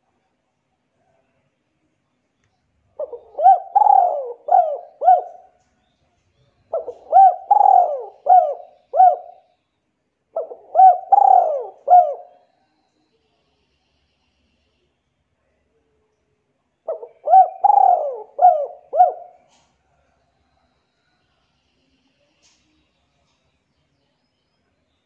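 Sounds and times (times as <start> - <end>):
bird calling: 3.0 - 5.5, 6.7 - 9.4, 10.4 - 12.4, 16.9 - 19.7.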